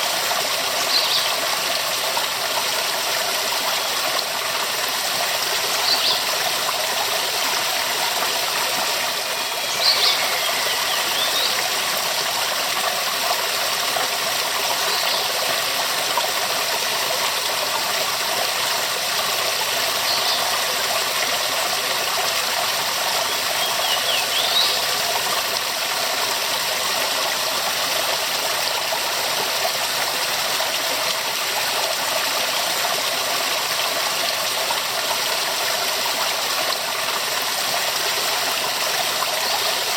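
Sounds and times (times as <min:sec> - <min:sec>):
waterfall rushing: 0:00.8 - 0:13.2.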